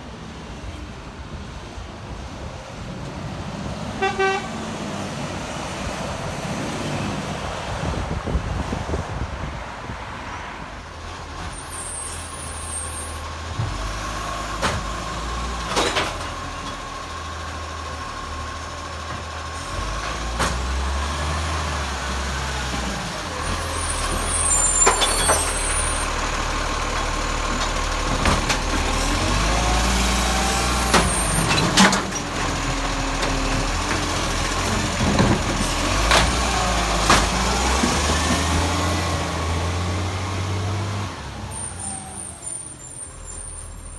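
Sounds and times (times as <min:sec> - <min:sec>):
diesel engine running: 0:11.0 - 0:43.9
sharp knocks and bangs: 0:30.7 - 0:38.9.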